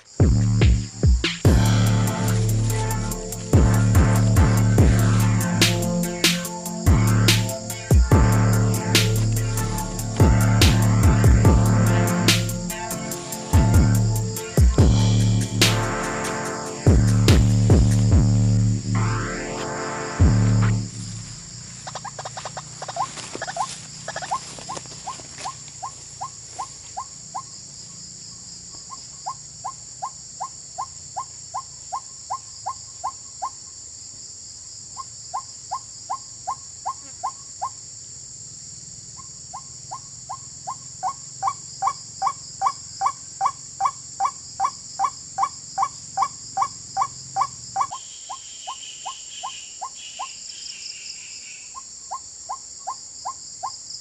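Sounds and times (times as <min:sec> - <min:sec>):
high insect drone: 0:00.0 - 0:54.0
high chirping: 0:00.3 - 0:27.5.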